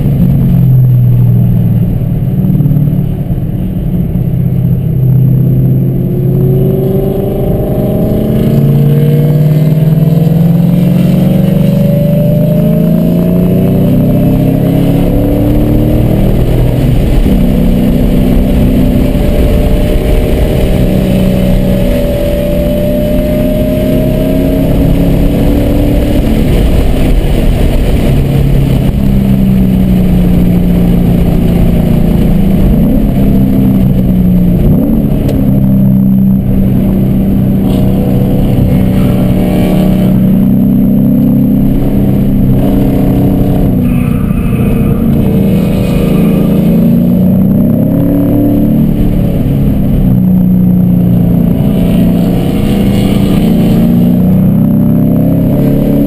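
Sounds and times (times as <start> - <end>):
car engine revving: 0.0 - 56.0
wind and road noise: 0.0 - 56.0.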